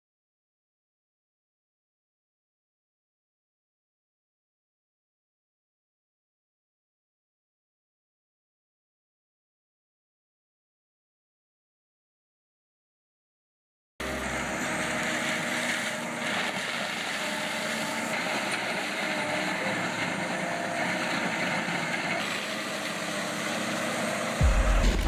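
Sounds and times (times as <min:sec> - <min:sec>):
engine running: 0:14.0 - 0:25.0
deep loud rumble: 0:24.4 - 0:25.0.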